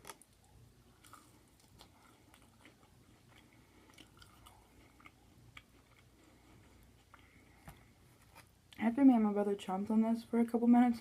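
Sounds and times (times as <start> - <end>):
chewing food: 0.0 - 8.8.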